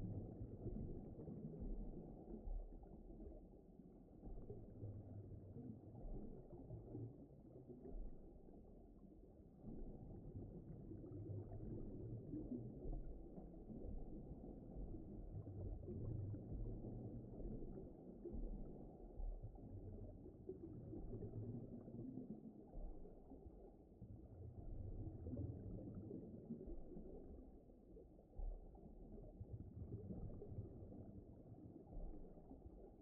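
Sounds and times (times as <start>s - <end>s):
muffled underwater rumble: 0.0s - 33.0s.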